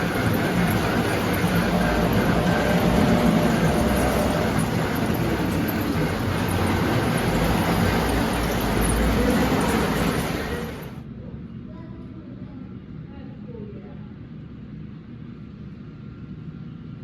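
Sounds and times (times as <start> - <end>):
model trains rumbling on track: 0.0 - 11.0.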